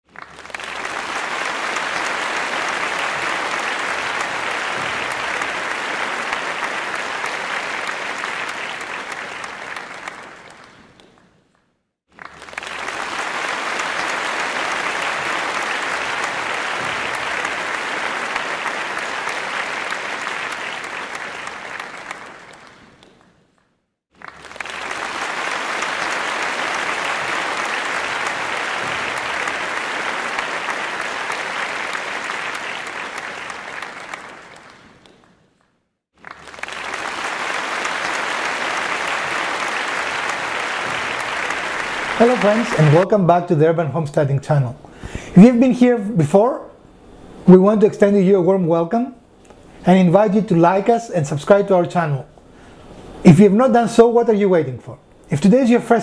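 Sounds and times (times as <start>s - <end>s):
crowd applause: 0.0s - 11.2s, 12.1s - 23.3s, 24.2s - 35.4s, 36.2s - 43.3s.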